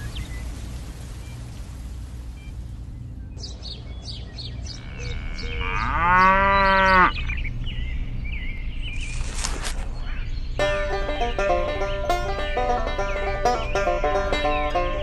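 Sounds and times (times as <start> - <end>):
cow mooing: 4.8 - 7.2.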